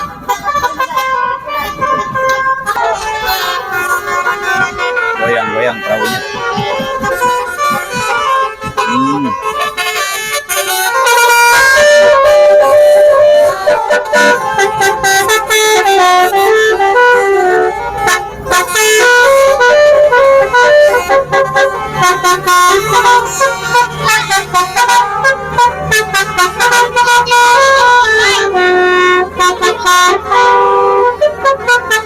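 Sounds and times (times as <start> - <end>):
multi-tone musical horn melody: 0.0 - 32.0
percussive beat: 6.0 - 9.6.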